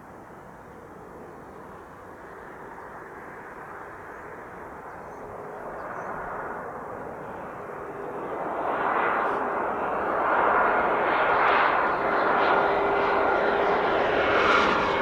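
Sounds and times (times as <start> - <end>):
jet engine roar: 6.6 - 15.0.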